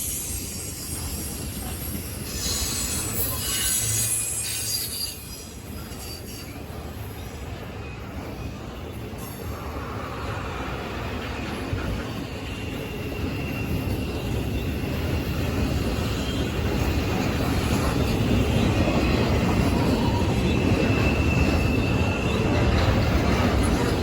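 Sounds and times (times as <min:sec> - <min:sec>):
train rumbling: 0:00.0 - 0:24.0.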